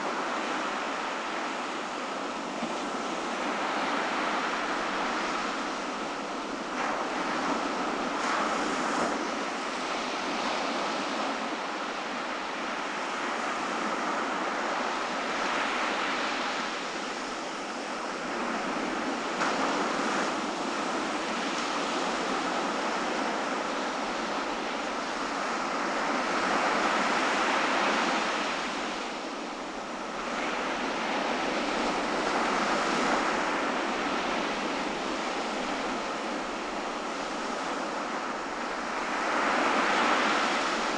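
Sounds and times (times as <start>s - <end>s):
ocean surf washing onto beach: 0.0s - 40.9s.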